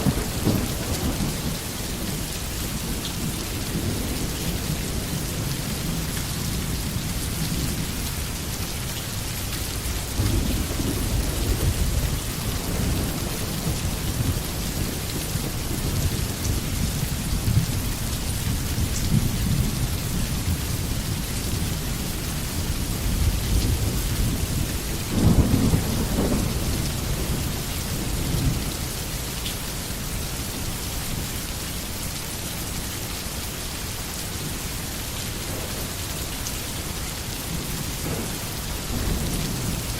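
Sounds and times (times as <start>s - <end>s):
low rolling thunder: 0.0s - 8.3s, 9.2s - 30.1s, 34.4s - 39.9s
rain hissing: 0.0s - 39.9s.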